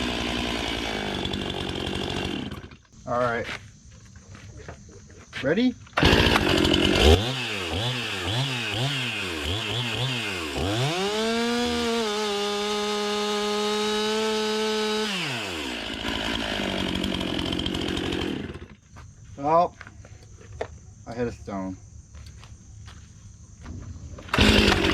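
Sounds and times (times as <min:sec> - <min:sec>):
chainsaw cutting log: 0:00.0 - 0:02.9, 0:06.0 - 0:18.8, 0:24.3 - 0:24.9.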